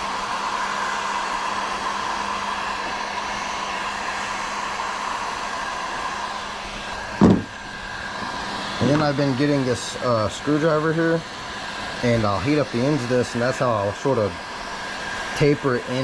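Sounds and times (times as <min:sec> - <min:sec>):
heat gun blowing air: 0:00.0 - 0:16.0
short thump: 0:07.2 - 0:07.5.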